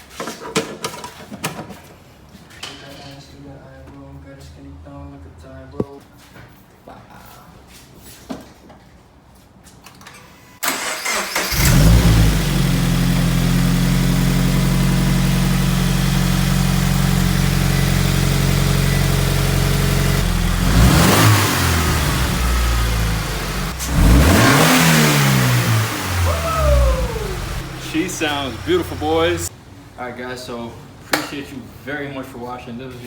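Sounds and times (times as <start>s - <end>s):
car engine starting and idling: 10.6s - 29.5s
car engine revving: 10.7s - 29.5s.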